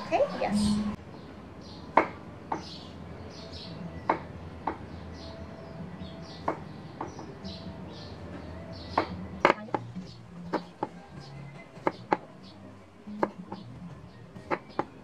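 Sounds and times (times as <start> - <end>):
small birds chirping: 0.0 - 15.0
sharp knocks: 2.0 - 2.7.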